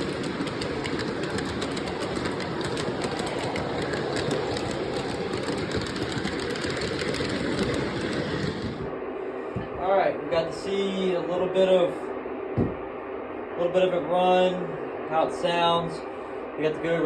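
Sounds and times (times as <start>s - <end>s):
wheels clicking on rails: 0.0s - 8.9s
model train running rumble: 0.0s - 9.0s.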